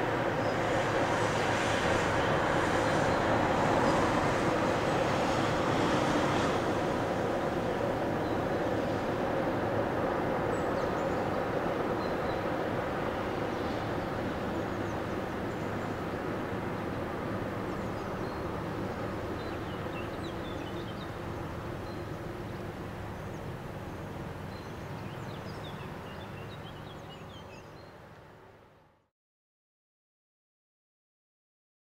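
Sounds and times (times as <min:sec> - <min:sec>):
freight train rumbling past: 0:00.0 - 0:27.3
small birds chirping: 0:17.7 - 0:28.0.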